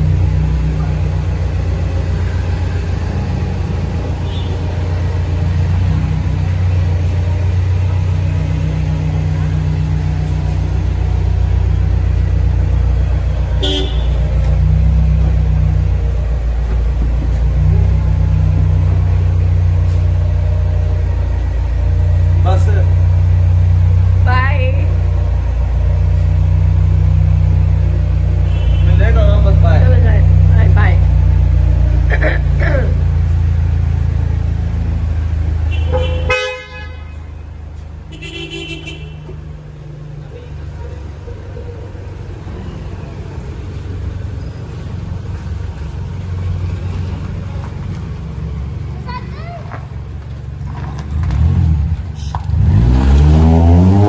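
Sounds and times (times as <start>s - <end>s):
car engine rumble: 0.0s - 54.0s
car horn toot: 4.2s - 4.7s, 13.6s - 14.4s, 28.4s - 29.3s, 35.6s - 37.4s, 38.1s - 39.4s.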